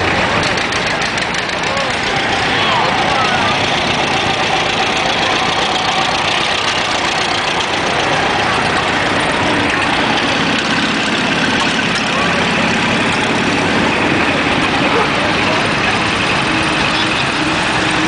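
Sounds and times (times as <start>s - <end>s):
people talking: 0.0s - 18.0s
tractor engines idling: 0.0s - 18.0s.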